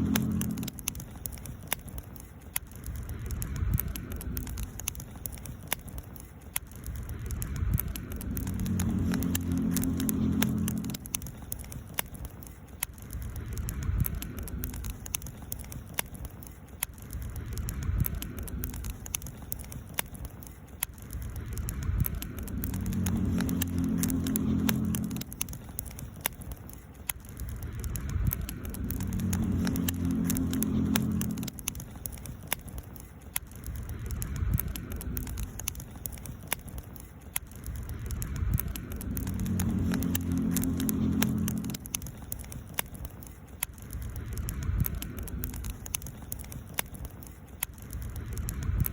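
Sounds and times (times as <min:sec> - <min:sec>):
low hum: 0:00.0 - 0:02.0, 0:06.7 - 0:12.4, 0:21.0 - 0:32.8, 0:37.5 - 0:47.2
campfire crackling and popping: 0:00.0 - 0:48.9.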